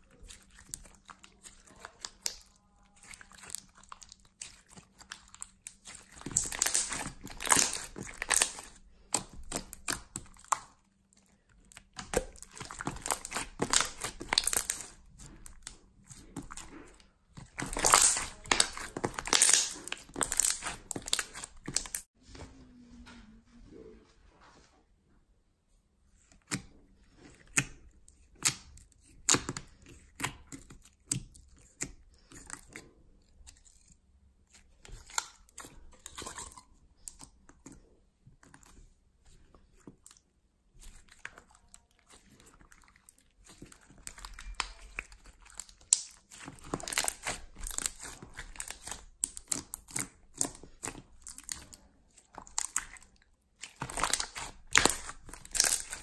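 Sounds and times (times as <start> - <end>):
slime squishing and stretching: 0.0 - 22.1, 26.2 - 56.0
slime popping and crackling: 0.1 - 22.1, 40.8 - 56.0.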